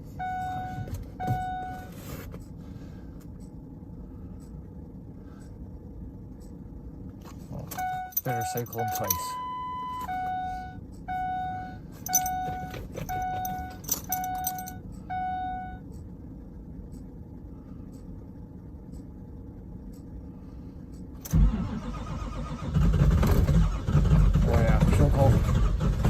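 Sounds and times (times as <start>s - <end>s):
dashboard chime beeping: 0.2s - 1.9s, 7.7s - 15.8s
starter cranking cold engine: 21.2s - 26.0s.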